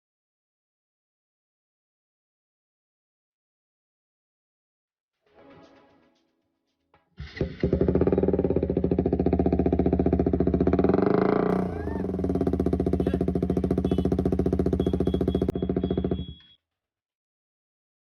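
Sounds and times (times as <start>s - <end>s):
motorcycle engine revving and idling: 7.3s - 16.6s.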